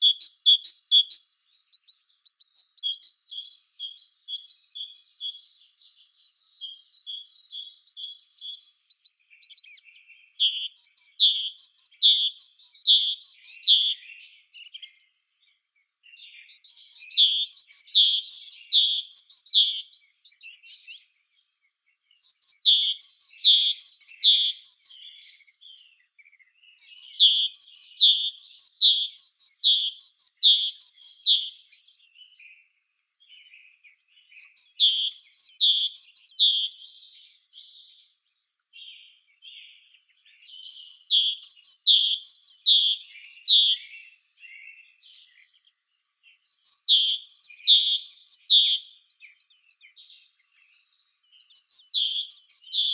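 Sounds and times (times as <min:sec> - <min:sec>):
short twittering bird notes: 0:00.0 - 0:15.2, 0:16.1 - 0:21.2, 0:22.2 - 0:26.0, 0:26.6 - 0:32.6, 0:33.4 - 0:38.1, 0:38.8 - 0:52.9
songbird singing: 0:00.0 - 0:52.9.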